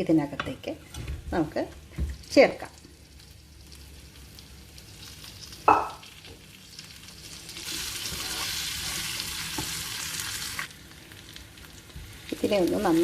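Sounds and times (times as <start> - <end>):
chicken sizzling in hot oil: 2.2 - 13.0.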